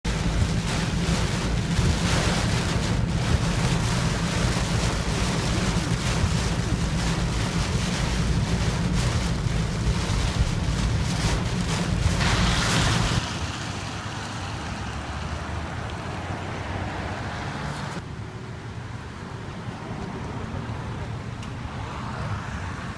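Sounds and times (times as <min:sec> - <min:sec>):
storm wind buffeting microphone: 0:00.1 - 0:14.5.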